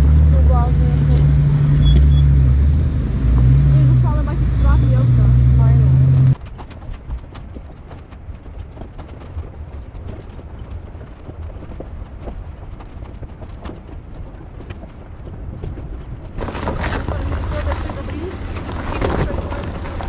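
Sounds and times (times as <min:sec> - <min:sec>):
truck engine rumble: 0:00.0 - 0:20.0
stones knocking under tyres: 0:15.7 - 0:20.0.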